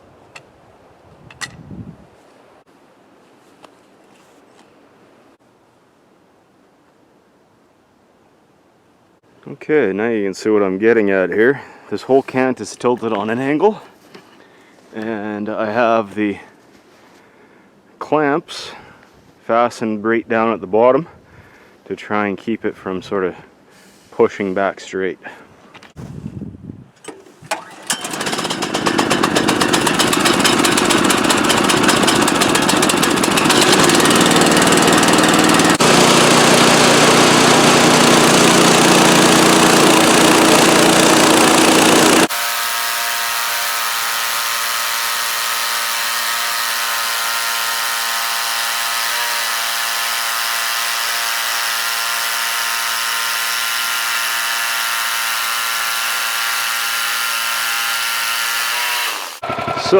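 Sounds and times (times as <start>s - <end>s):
sawmill engine running: 27.5s - 59.9s
band blade sawing through wood: 28.0s - 59.9s.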